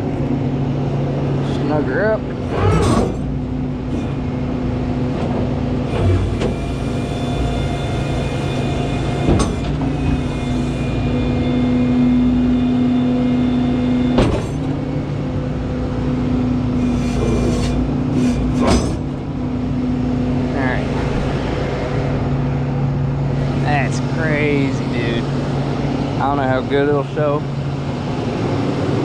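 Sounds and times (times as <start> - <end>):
hydraulic pump whine: 0.0 - 29.0
truck engine running: 0.0 - 29.0
metallic clanks: 2.5 - 4.2, 16.9 - 19.2.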